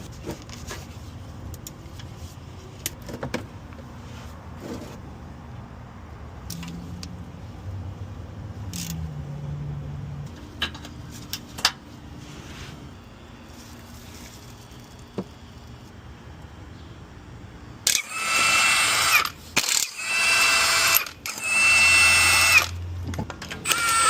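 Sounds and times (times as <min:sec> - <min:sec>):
low steady hum: 0:00.0 - 0:17.9.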